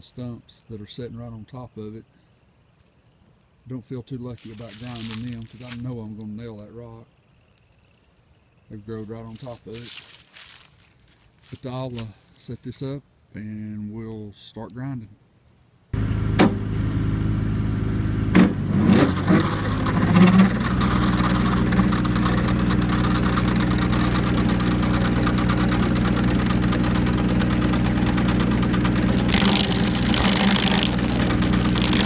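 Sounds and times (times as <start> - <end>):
stump grinder engine running: 16.0 - 32.0.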